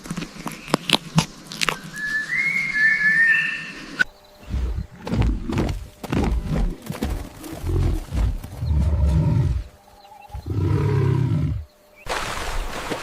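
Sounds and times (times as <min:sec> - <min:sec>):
big cat growling roars: 0:04.4 - 0:11.7.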